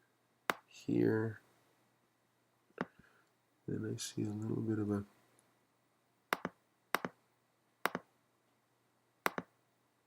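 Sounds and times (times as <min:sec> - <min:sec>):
computer mouse clicks: 0:06.3 - 0:07.2, 0:07.8 - 0:08.0, 0:09.2 - 0:09.5.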